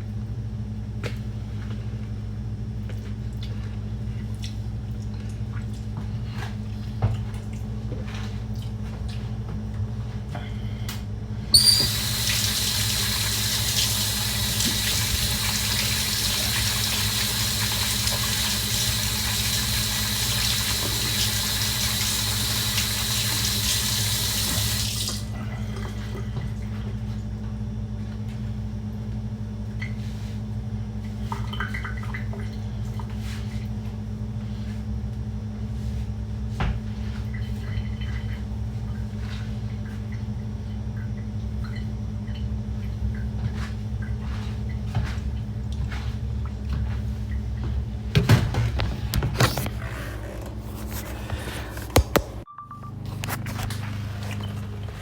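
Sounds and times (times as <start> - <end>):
kitchen tap running: 11.5 - 25.3, 48.1 - 52.5.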